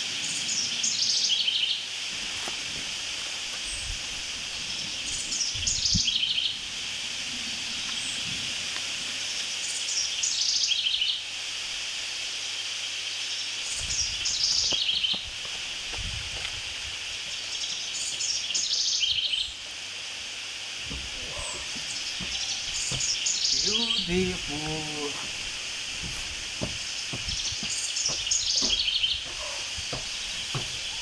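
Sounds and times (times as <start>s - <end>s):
songbird singing: 0.0s - 11.4s, 12.9s - 31.0s
steady high hiss: 0.0s - 31.0s
dull thumps: 20.8s - 31.0s.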